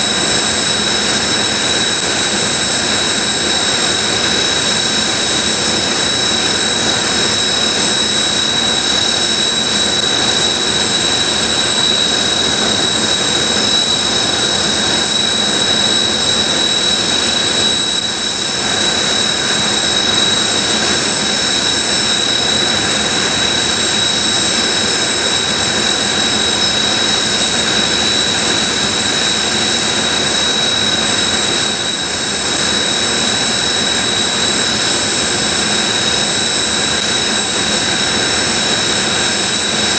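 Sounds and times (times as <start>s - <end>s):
jet engines idling with high whine: 0.0s - 39.9s.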